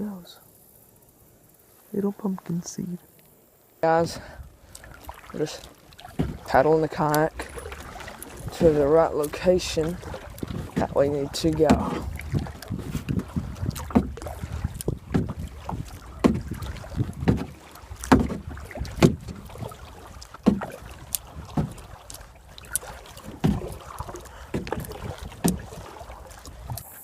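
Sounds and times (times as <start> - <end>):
paddle pulling through water: 3.3 - 27.0
paddle knocking against boat: 3.8 - 26.9.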